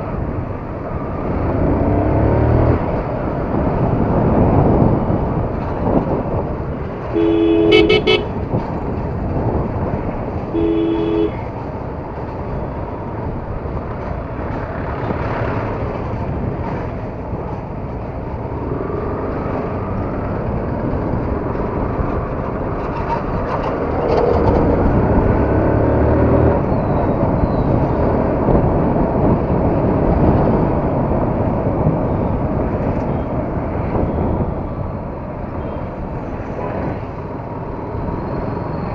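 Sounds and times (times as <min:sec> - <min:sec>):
wind and traffic rush: 0:00.0 - 0:38.9
two-tone vehicle horn beeps: 0:07.1 - 0:08.4, 0:10.5 - 0:11.4.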